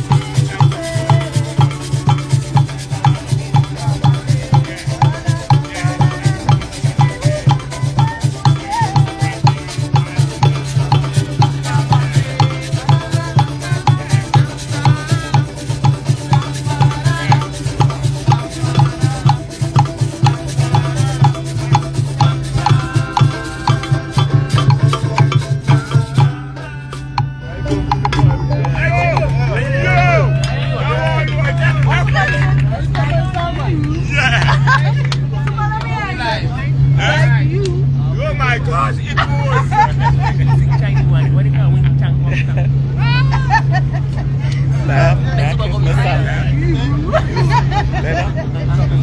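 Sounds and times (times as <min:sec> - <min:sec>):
shakers and drums playing: 0:00.0 - 0:36.1.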